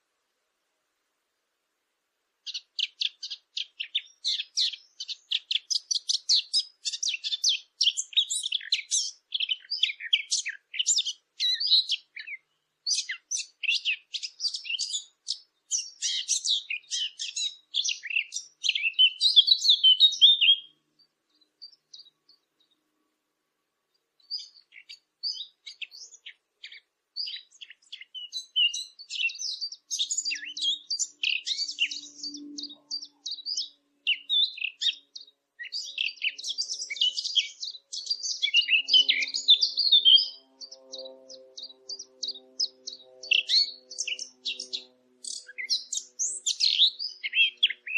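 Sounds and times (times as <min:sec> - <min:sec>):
songbird chattering song: 0:02.4 - 0:23.1, 0:23.8 - 0:47.9.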